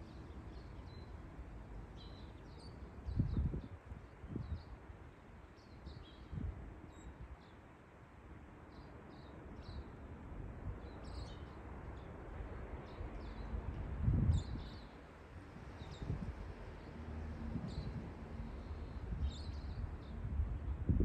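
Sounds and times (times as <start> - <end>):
steady outdoor hiss: 0.0 - 21.0
small birds chirping: 2.0 - 4.8, 15.7 - 16.2, 17.7 - 20.2
wind rumbling on microphone: 3.0 - 4.8, 5.8 - 7.4, 12.5 - 21.0.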